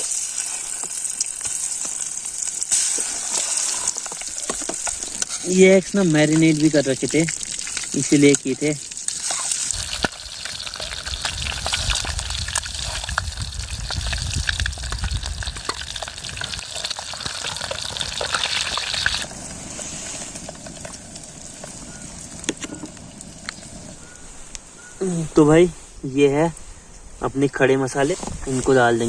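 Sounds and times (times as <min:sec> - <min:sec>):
eggs sizzling in hot oil: 0:00.0 - 0:19.5.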